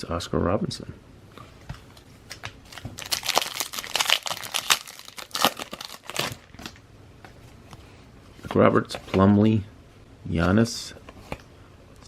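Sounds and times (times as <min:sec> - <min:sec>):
foil wrapper tearing and crinkling: 0:02.3 - 0:06.8.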